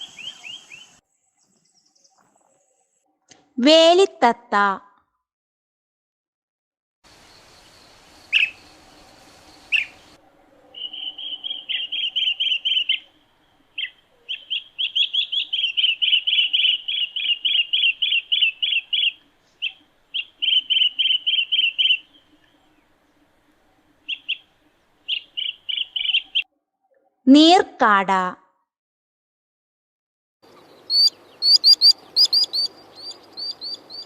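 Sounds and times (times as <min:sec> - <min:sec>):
bird chirps and trills: 0:07.3 - 0:23.3, 0:24.0 - 0:26.5, 0:30.5 - 0:34.0.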